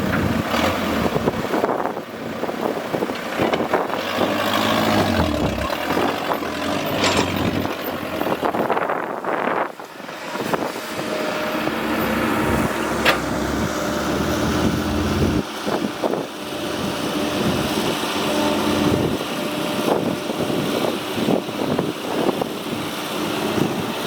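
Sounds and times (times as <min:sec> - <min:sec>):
excavator engine running: 0:00.0 - 0:24.0.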